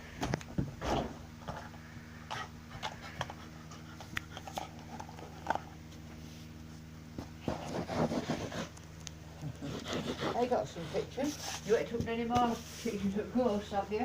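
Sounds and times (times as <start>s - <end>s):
steady low hum: 0.0s - 14.0s
dog scuffling: 9.7s - 13.8s.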